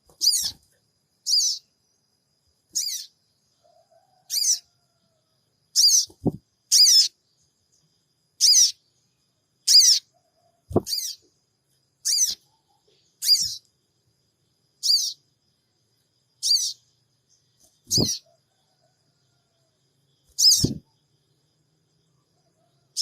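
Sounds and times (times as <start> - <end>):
high-pitched bird calls: 0.1 - 0.6, 1.2 - 1.7, 2.7 - 3.2, 4.3 - 4.7, 5.7 - 7.2, 8.4 - 8.8, 9.6 - 10.1, 10.7 - 11.3, 12.0 - 13.7, 14.8 - 15.2, 16.4 - 16.9, 17.8 - 18.3, 20.3 - 20.9.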